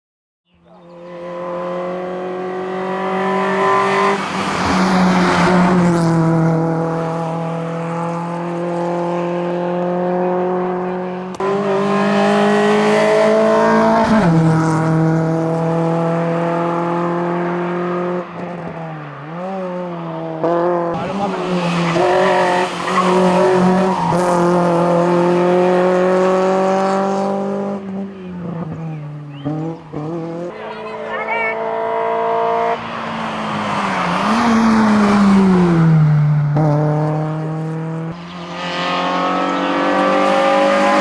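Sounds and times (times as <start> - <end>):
car engine at high revs: 0.6 - 41.0.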